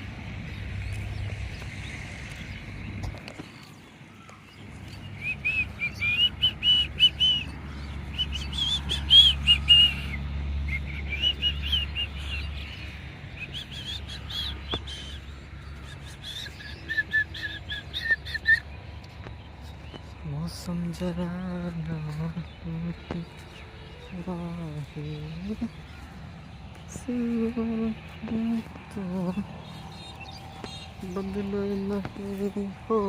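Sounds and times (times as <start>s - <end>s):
low steady rumble: 0.0s - 3.4s
bird chirping: 0.0s - 33.0s.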